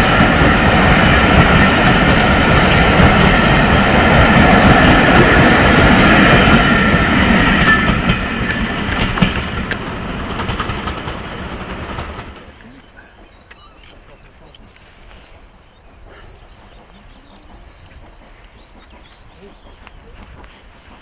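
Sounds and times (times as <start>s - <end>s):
train coaches rumbling past: 0.0s - 21.0s
wheels clicking over rail joints: 1.3s - 21.0s.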